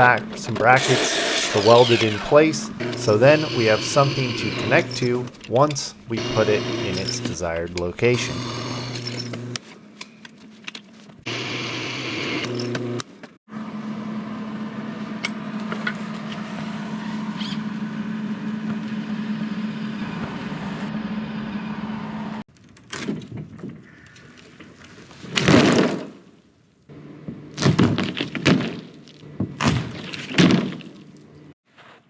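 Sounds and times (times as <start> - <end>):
power tool humming: 0.0 - 9.6, 11.3 - 13.0.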